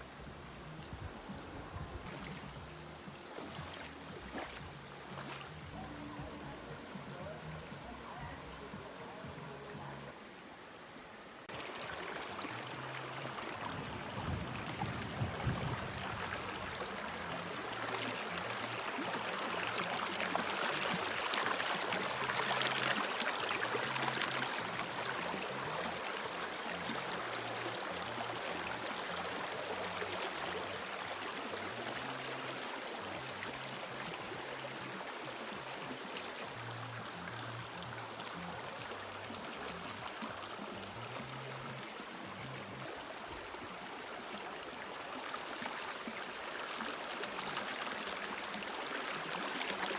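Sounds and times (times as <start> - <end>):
background music with bass: 0.0 - 10.2
creek water rushing: 0.0 - 49.9.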